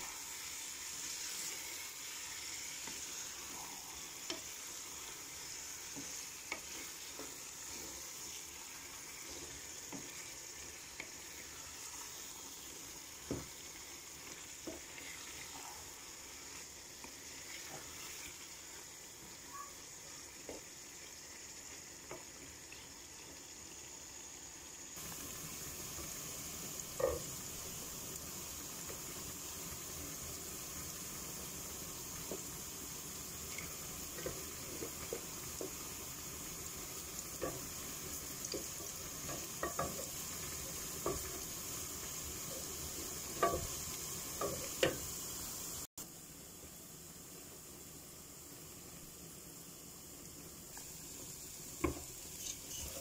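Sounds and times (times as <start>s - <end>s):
aromatics sizzling in hot oil: 0.0s - 53.0s
wooden spoon scraping a pan: 0.4s - 12.3s, 13.4s - 18.5s, 33.5s - 35.9s, 51.8s - 53.0s.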